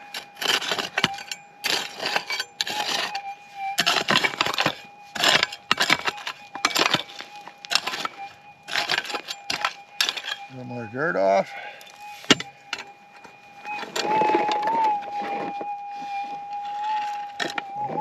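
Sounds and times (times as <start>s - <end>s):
faint steady detector tone: 0.1s - 18.0s
pick scraping into gravelly dirt: 3.8s - 10.4s.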